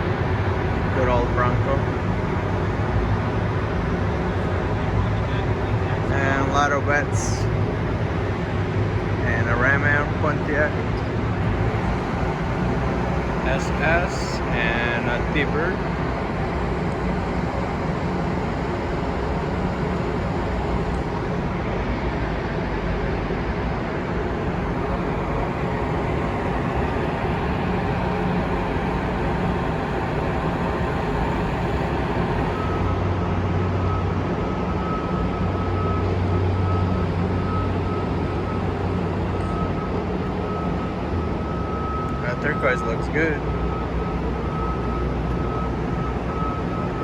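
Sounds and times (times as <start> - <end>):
deeper hum: 0.0 - 47.0
rumble and hum: 0.0 - 47.0
thin steady high tone: 10.0 - 21.5, 23.6 - 47.0.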